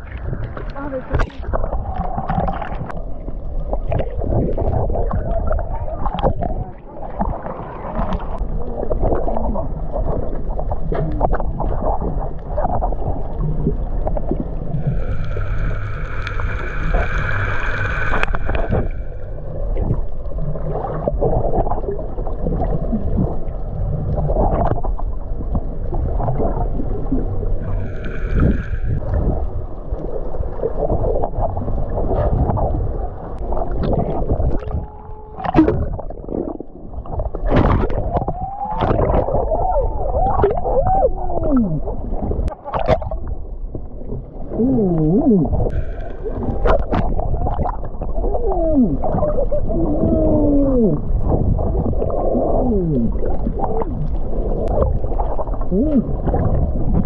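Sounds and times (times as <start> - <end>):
underwater bubbling and crackling: 0.0 - 57.0
steady high-pitched tone: 14.8 - 19.8.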